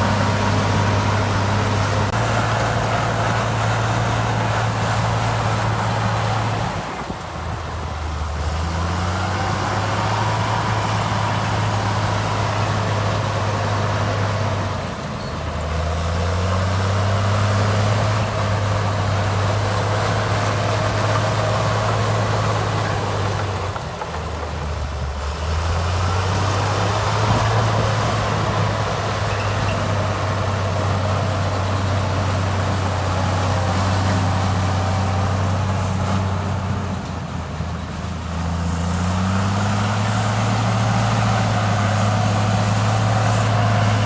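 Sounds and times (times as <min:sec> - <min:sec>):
diesel engine under load: 0:00.0 - 0:44.0.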